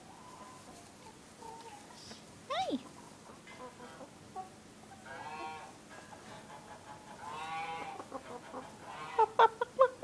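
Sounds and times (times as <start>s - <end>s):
poultry calls: 3.6s - 9.8s.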